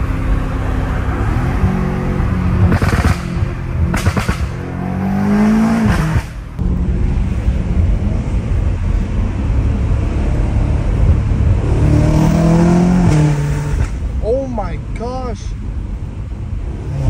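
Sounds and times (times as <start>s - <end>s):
car engine accelerating hard: 0.0s - 14.2s.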